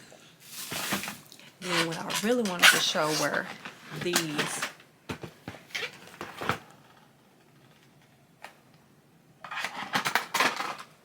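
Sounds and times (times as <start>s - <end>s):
clattering and rustling: 0.5s - 7.0s, 9.4s - 11.0s.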